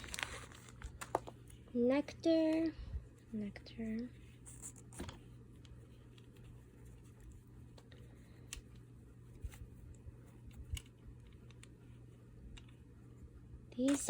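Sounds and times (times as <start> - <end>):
package being handled and opened: 0.0 - 1.7
low steady hum: 0.0 - 14.0.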